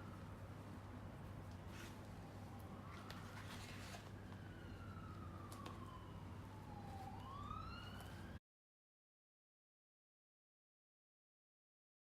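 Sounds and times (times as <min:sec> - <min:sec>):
emergency vehicle siren wailing: 0:02.0 - 0:08.4.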